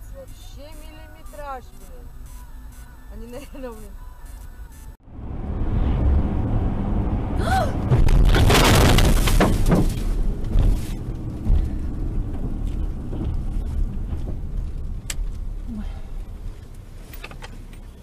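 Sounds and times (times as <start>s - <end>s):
road rumble: 0.0s - 18.0s
car crash with crunching debris: 7.8s - 11.0s.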